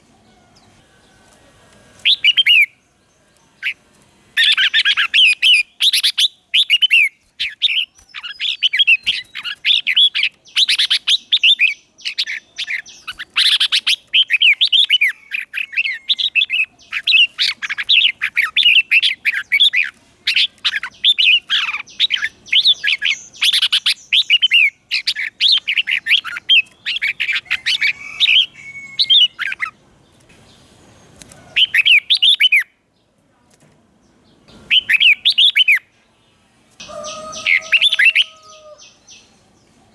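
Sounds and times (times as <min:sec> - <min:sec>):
bird singing whistled notes: 0:02.0 - 0:02.8, 0:31.6 - 0:32.7, 0:34.5 - 0:35.9.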